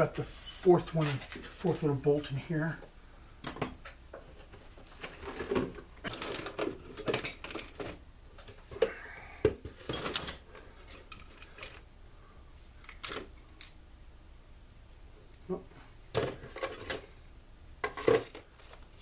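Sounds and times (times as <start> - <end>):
metal tools clinking and scraping: 0.8 - 1.6, 5.0 - 8.5, 9.8 - 11.9, 16.2 - 17.0.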